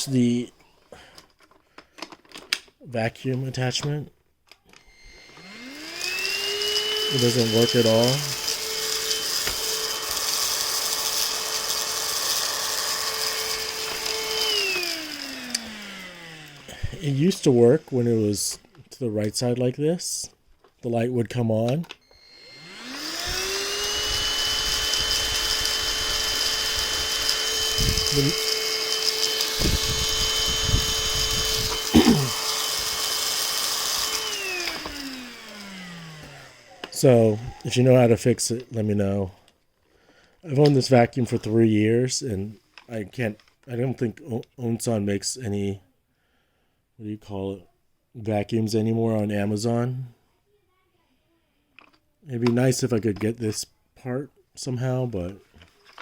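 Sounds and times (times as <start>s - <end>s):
vacuum cleaner motor whining: 4.7s - 18.9s, 22.0s - 38.7s.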